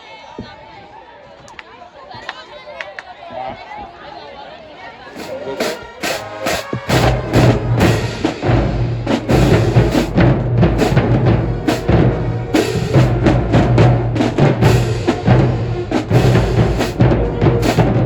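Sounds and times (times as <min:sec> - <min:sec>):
marching drumline beat: 0:05.2 - 0:18.0.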